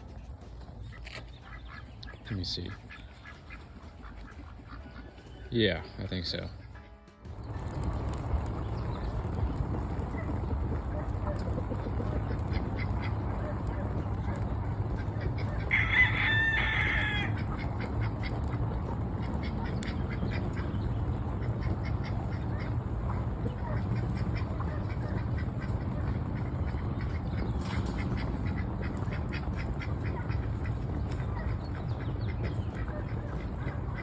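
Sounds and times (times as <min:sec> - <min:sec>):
ducks quacking: 0:00.0 - 0:34.0
steady low rumble: 0:07.2 - 0:34.0.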